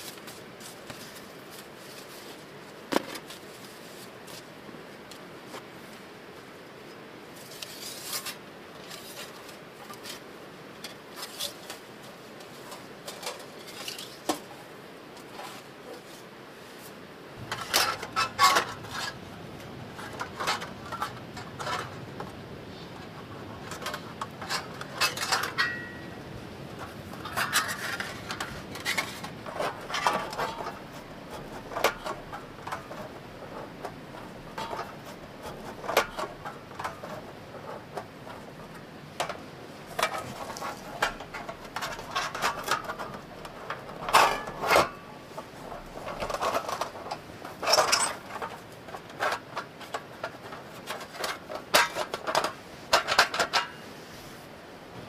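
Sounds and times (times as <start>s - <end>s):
camp cookware clinking and scraping: 17.4s - 22.4s, 23.0s - 53.9s.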